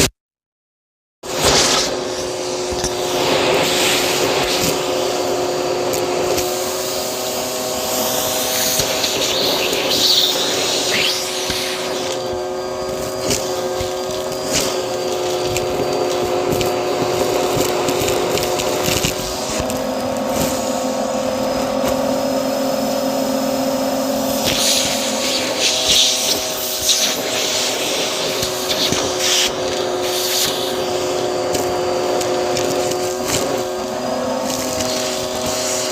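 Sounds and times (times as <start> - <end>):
vacuum cleaner running: 1.2 - 35.9
rushing hissing airflow: 7.8 - 12.4, 24.2 - 31.1.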